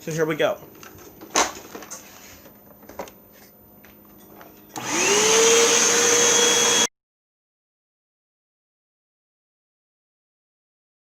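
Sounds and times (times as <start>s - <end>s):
vacuum cleaner motor whine: 4.7s - 6.9s.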